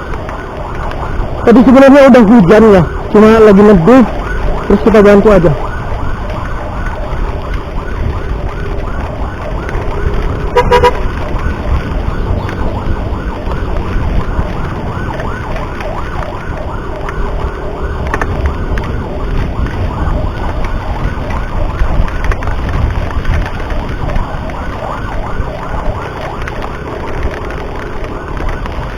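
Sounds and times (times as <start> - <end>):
ambulance siren yelping: 0.0 - 28.9
wind and road noise: 0.0 - 28.9
horn blast: 10.5 - 11.1.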